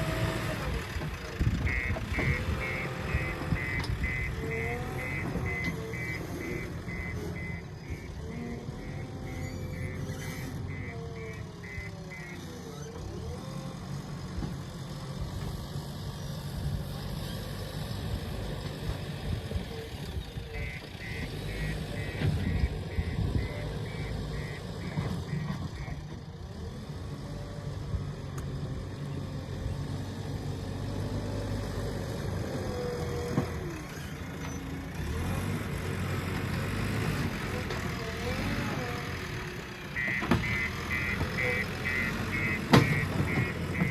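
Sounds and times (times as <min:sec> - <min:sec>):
diesel engine running: 0:00.0 - 0:43.9
reversing alarm beeping: 0:01.6 - 0:12.8, 0:20.5 - 0:25.9, 0:40.0 - 0:43.9.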